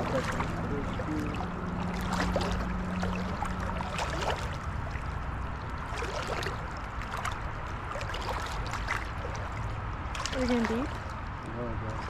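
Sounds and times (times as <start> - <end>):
legs wading through water: 0.0 - 12.0
steady low rumble: 0.0 - 12.0.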